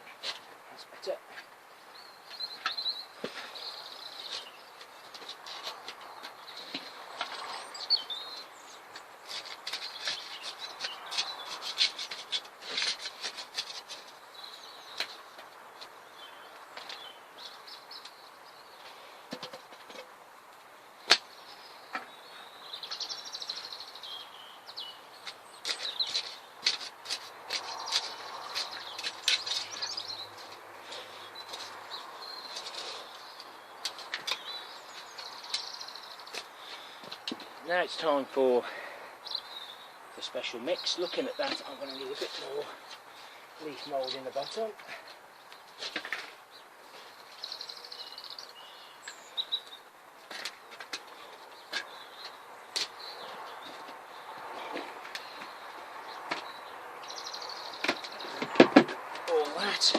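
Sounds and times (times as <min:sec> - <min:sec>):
small birds chirping: 0:00.0 - 0:59.9
soil scraping and clicking: 0:08.9 - 0:18.2, 0:24.8 - 0:38.5, 0:40.2 - 0:48.1, 0:49.0 - 0:59.9
sharp clicks and scrapes: 0:09.0 - 0:14.2, 0:25.2 - 0:31.8.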